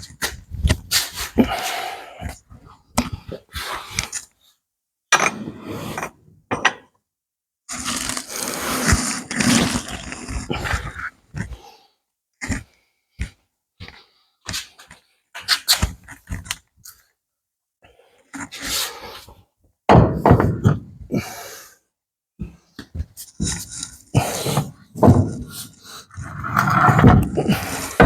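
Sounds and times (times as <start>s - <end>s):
rough scrape: 7.7s - 11.0s, 25.3s - 28.0s.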